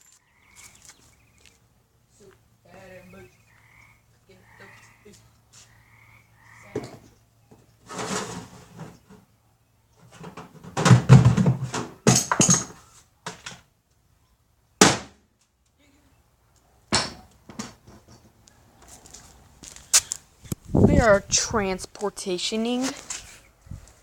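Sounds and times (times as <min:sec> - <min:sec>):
objects knocking and thudding: 0:06.8 - 0:09.3, 0:10.0 - 0:13.6, 0:16.9 - 0:18.4.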